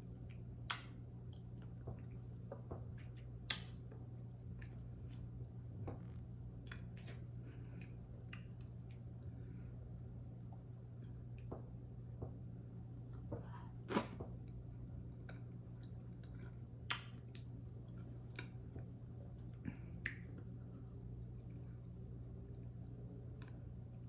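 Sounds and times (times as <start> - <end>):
steady low hum: 0.0 - 24.0
wet mouth smacks and squishes: 3.1 - 3.8, 16.9 - 17.5.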